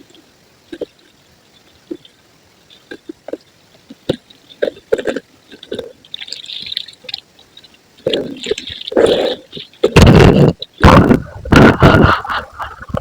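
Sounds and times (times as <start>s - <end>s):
small cracks and drips: 0.0s - 9.9s.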